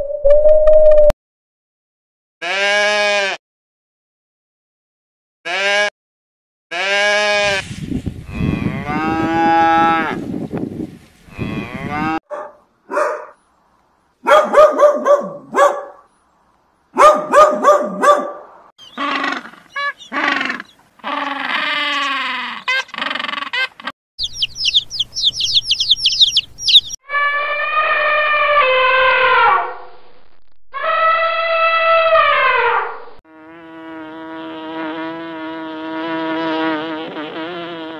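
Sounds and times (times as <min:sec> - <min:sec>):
cows mooing: 0:08.3 - 0:10.2, 0:11.3 - 0:12.2
long pitched animal calls: 0:18.8 - 0:23.7, 0:26.8 - 0:29.9, 0:30.8 - 0:33.0
fast high chirping: 0:24.2 - 0:27.0.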